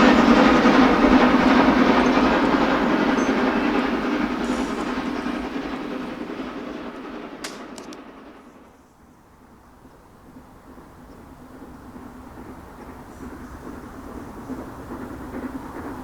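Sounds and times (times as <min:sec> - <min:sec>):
steam train running past: 0:00.0 - 0:16.0
sharp clicks: 0:07.4 - 0:08.1.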